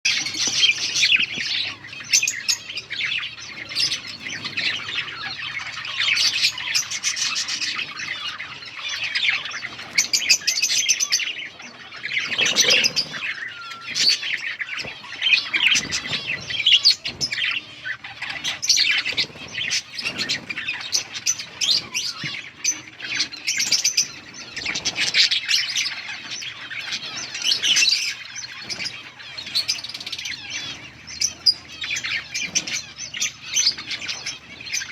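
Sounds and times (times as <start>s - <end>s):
budgerigars chirping: 0.1s - 34.9s
wing flutter: 12.2s - 17.6s.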